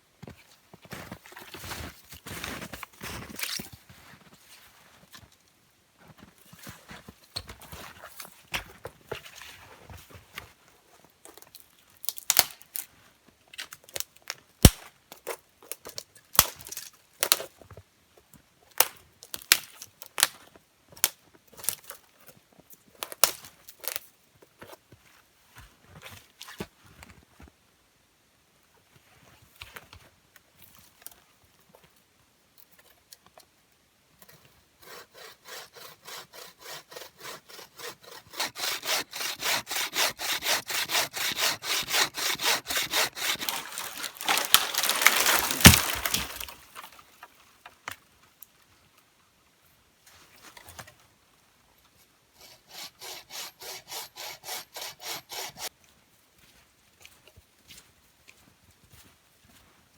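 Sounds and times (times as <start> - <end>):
hand saw cutting wood: 34.3 - 46.6, 52.4 - 55.7
wood cracking: 41.9 - 47.3.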